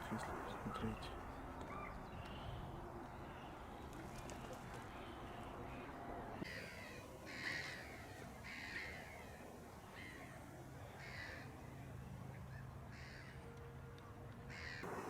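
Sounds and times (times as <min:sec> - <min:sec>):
crows cawing: 0:04.3 - 0:11.7, 0:12.4 - 0:13.6, 0:14.5 - 0:15.0.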